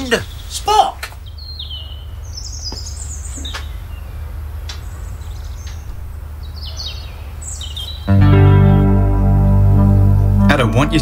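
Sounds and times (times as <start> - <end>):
small birds chirping: 0.0 - 8.3.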